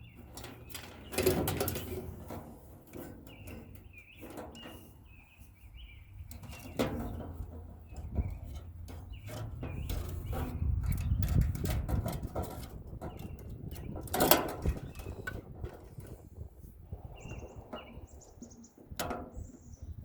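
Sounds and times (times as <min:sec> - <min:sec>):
sheet metal knocking and rattling: 0:00.2 - 0:04.9, 0:06.2 - 0:16.4
bird chirps: 0:03.2 - 0:07.2, 0:17.1 - 0:20.0.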